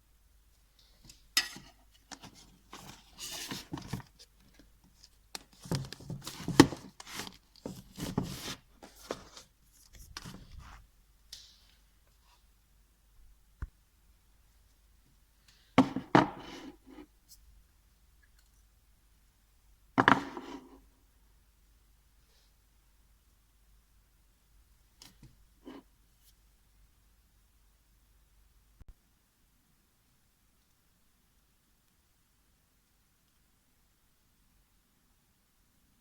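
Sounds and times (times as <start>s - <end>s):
rustling: 0.8s - 12.4s
objects being moved and set down: 1.0s - 10.8s, 15.8s - 17.0s, 20.0s - 20.8s.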